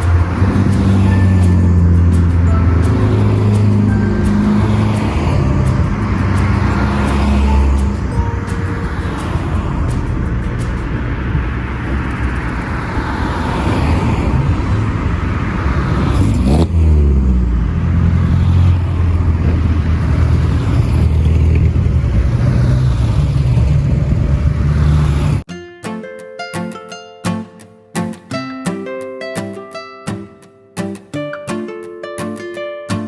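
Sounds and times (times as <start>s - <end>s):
car engine running: 0.0s - 25.4s.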